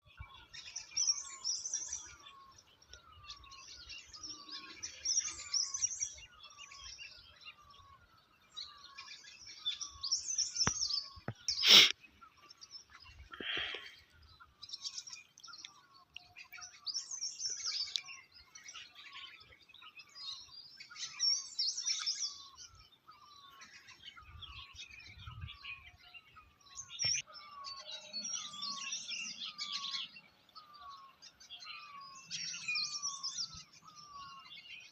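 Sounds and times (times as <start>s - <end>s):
songbirds chirping and singing: 0.0s - 34.9s
short falling bird call: 10.6s - 12.0s.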